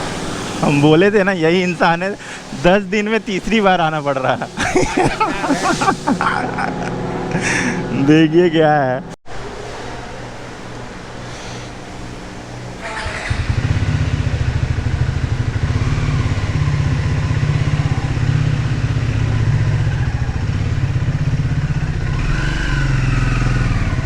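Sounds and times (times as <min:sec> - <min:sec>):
motorcycle engine running: 0:11.8 - 0:24.0.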